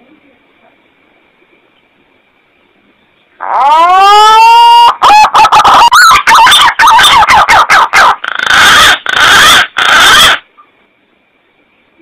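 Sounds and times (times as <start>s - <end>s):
loud bird calls: 3.4s - 10.7s.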